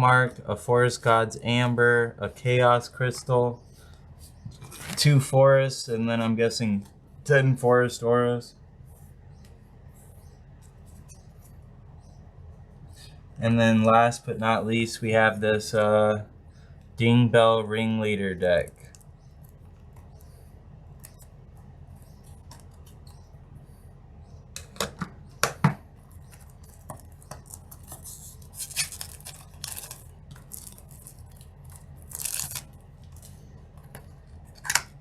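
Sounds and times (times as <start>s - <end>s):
rustling: 26.0s - 34.8s
packaging crackling and tearing: 26.1s - 34.9s.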